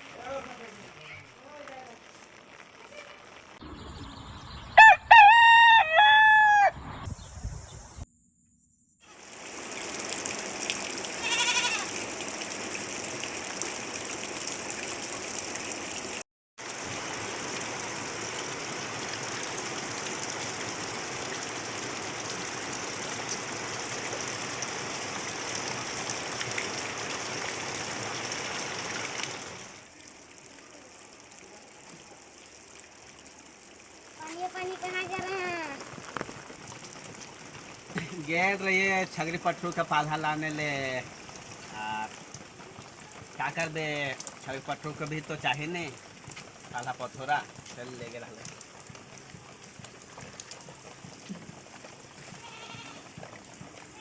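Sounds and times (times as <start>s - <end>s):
rain hissing: 0.0s - 4.5s, 9.1s - 54.0s
rooster crowing: 4.8s - 6.8s.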